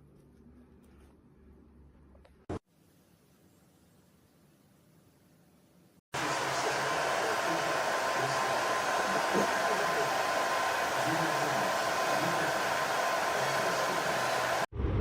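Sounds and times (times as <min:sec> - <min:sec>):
hair dryer blowing with whine: 0:06.2 - 0:14.7.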